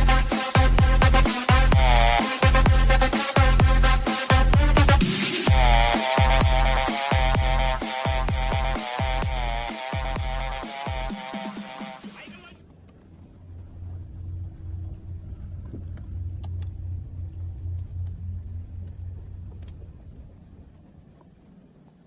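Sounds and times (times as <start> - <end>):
vehicle engine rumble: 12.6 - 22.0.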